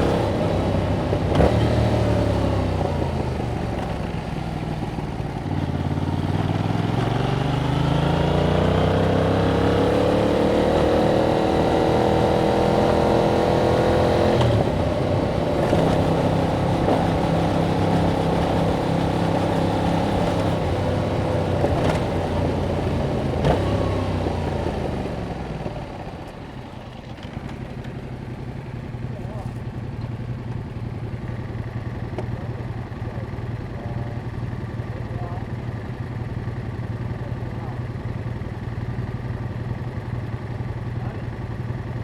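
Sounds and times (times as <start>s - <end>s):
motorcycle engine accelerating: 0.0s - 42.0s.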